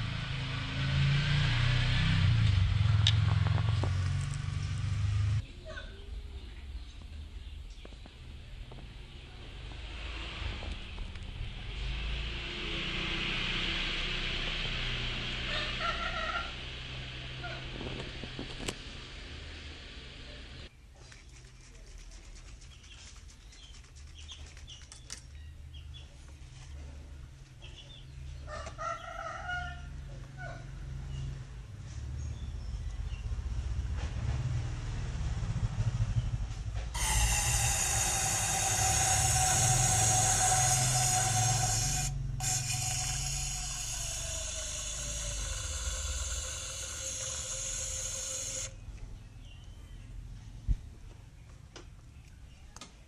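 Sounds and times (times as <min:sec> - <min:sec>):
rooster crowing: 0:28.5 - 0:30.7, 0:37.0 - 0:48.8
steady low hum: 0:32.5 - 0:52.3
aerosol can spraying: 0:37.0 - 0:48.7.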